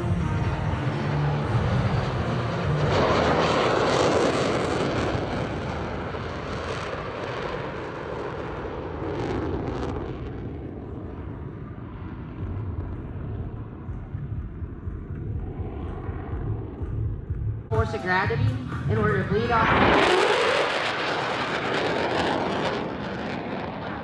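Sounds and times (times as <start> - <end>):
fighter jets roaring past: 0.0 - 14.3, 17.8 - 24.0.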